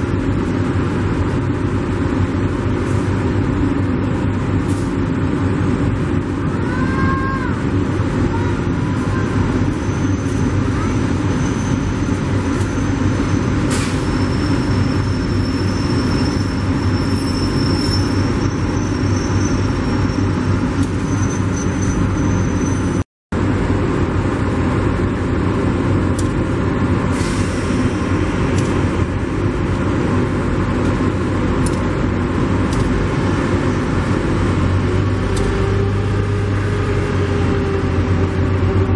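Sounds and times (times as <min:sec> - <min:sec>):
passenger train rumbling and rattling: 0:00.0 - 0:38.9.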